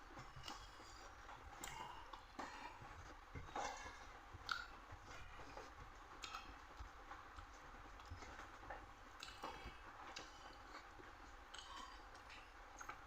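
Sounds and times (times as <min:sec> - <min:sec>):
person chewing: 0:00.1 - 0:06.7, 0:09.2 - 0:13.0
mouth clicks and wet smacks: 0:00.1 - 0:13.0.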